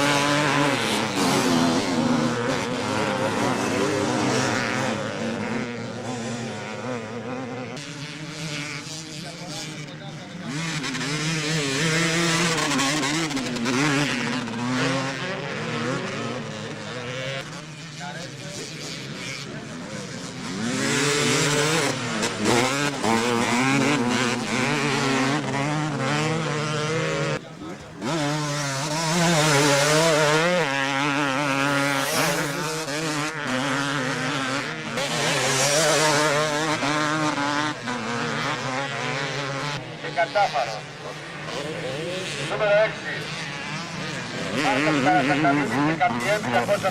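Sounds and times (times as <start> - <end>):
motocross bike engines revving: 0.0 - 46.9.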